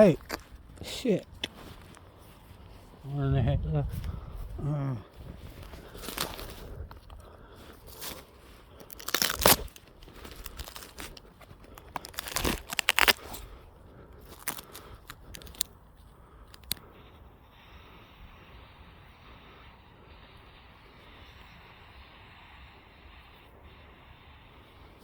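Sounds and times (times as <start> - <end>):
crunching and tearing handling noises: 5.4 - 15.7, 16.5 - 16.8.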